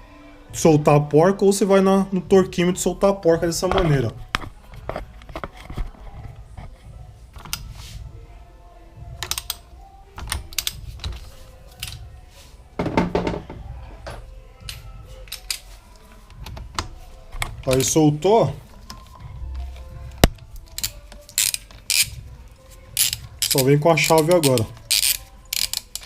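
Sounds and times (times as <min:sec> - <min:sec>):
torque wrench metallic clicks: 0:09.2 - 0:09.6, 0:10.2 - 0:11.2, 0:20.2 - 0:22.2, 0:23.0 - 0:26.0.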